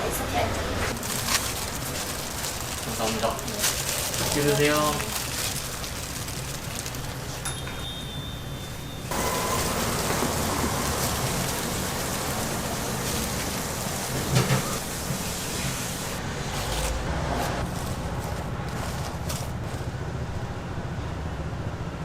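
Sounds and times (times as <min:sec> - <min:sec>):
oil sizzling in a deep fryer: 0:09.1 - 0:16.2.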